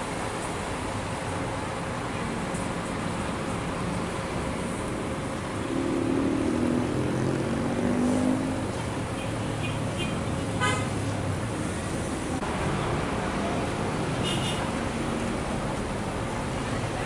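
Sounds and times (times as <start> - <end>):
traffic noise: 0.0 - 17.0
vehicle horn: 9.2 - 11.0, 14.2 - 14.7.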